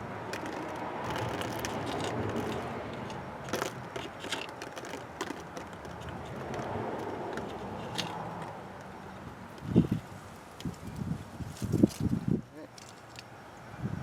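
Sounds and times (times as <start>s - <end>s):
hand reamer scraping pipe: 0.0s - 8.9s.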